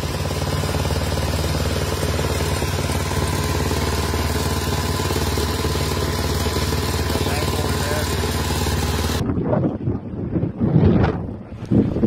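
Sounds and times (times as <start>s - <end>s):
engine rumbling steadily: 0.0s - 12.0s.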